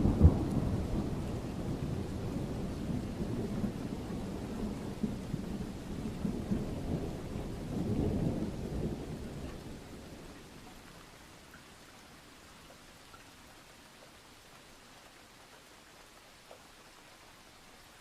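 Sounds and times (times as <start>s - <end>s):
rolling thunder: 0.0s - 10.5s
steady rain: 0.0s - 18.0s.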